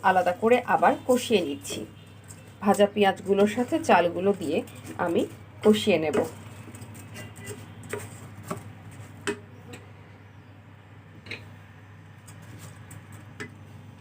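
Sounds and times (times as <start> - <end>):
spatula scraping frying pan: 6.4 - 8.4.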